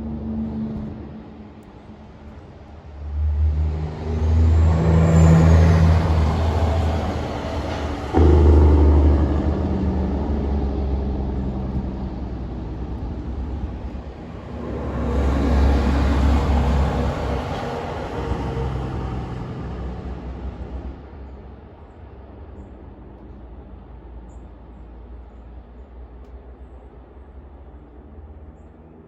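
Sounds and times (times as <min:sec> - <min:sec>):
heavy trucks driving past: 0:02.6 - 0:22.1.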